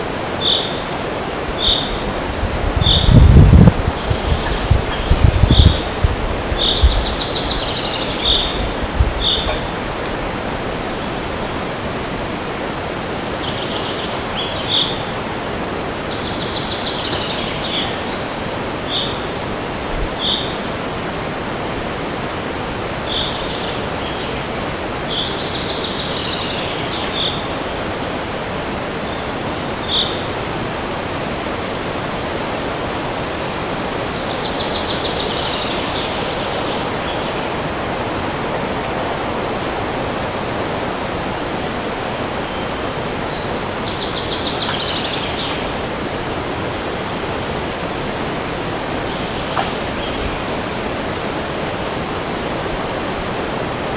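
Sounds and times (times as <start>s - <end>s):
wind rushing in forest: 0.0s - 53.9s
songbird singing high notes: 0.1s - 3.3s.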